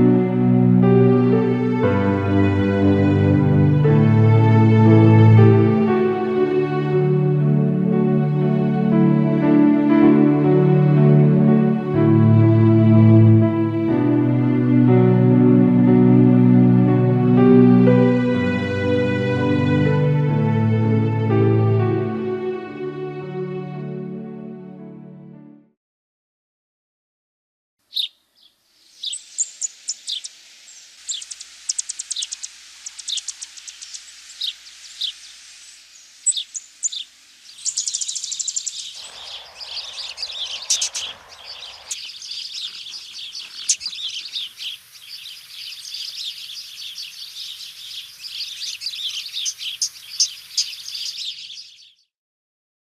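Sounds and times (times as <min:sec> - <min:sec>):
birds chirping and trilling: 0:27.9 - 0:52.1
low rushing hiss: 0:28.6 - 0:51.1.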